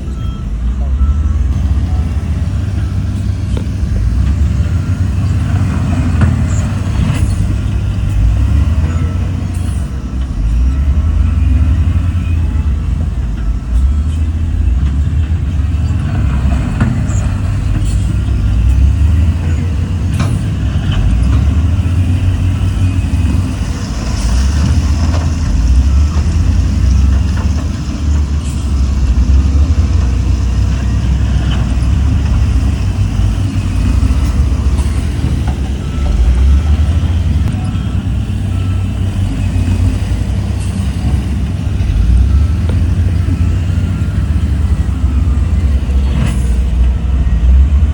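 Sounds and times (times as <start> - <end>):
heavy diesel engine rumbling: 0.0 - 47.9
sharp knocks and clanks: 1.5 - 10.3.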